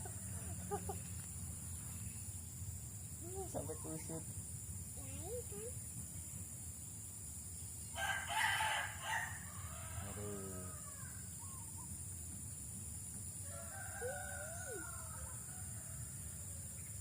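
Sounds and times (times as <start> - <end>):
rooster crowing: 8.0 - 11.2, 13.4 - 16.6
faint bird calls: 9.1 - 12.0.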